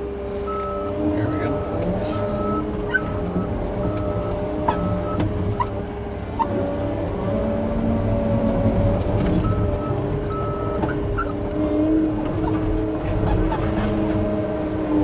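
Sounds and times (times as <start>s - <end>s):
diesel engine running under load: 0.0s - 15.0s
reversing alarm beeps: 0.5s - 5.2s, 9.4s - 11.2s.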